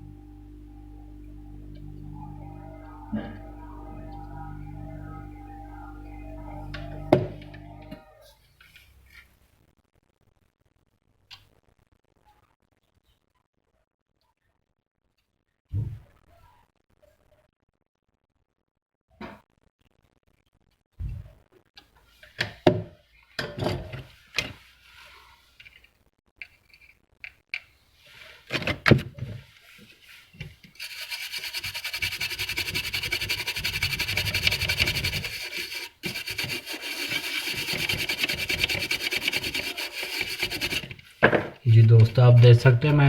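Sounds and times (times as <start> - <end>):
rapid scrubbing strokes: 29.7 - 43.0.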